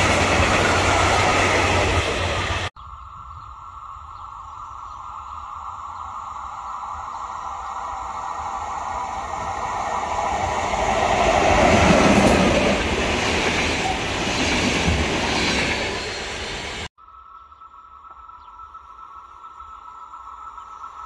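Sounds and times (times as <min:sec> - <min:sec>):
train wheels rumbling on rails: 0:00.0 - 0:02.7, 0:07.4 - 0:16.9
electric locomotive passing: 0:00.0 - 0:21.0.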